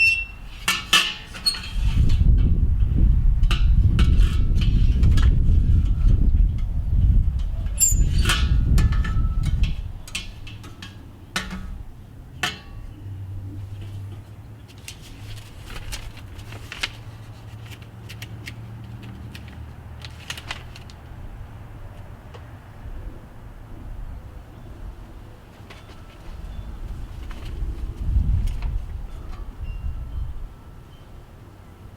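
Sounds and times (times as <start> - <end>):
metal parts clinking: 7.8 - 9.2.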